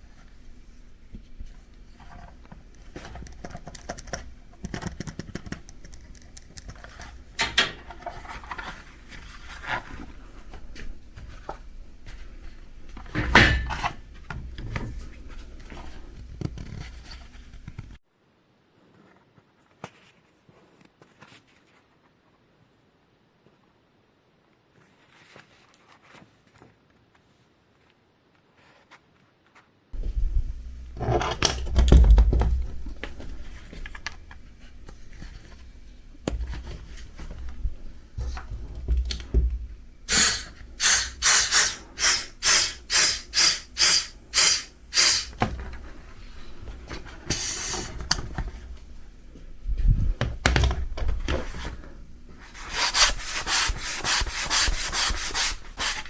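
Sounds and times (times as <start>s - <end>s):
hand pump hissing strokes: 40.1s - 45.4s, 47.3s - 48.0s, 52.6s - 56.0s.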